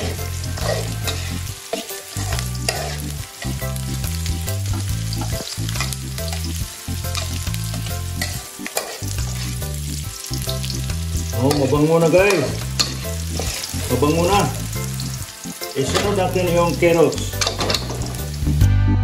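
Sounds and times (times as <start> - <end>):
metal spoon scraping wok: 0.0 - 3.8, 5.2 - 10.0, 11.4 - 14.1, 17.3 - 18.3
onion and garlic sizzling in oil: 0.0 - 18.6.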